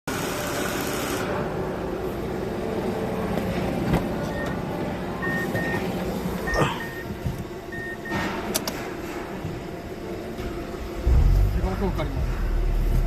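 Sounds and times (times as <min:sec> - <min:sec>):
faint high beeps: 0:05.2 - 0:05.9, 0:06.5 - 0:07.1
car engine running: 0:10.8 - 0:13.0.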